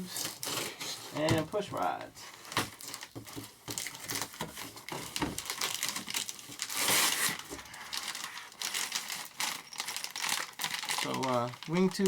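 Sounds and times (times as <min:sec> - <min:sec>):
tape ripping off cardboard box: 0:00.0 - 0:01.4, 0:02.5 - 0:09.6
crinkling handling noise: 0:00.0 - 0:12.0.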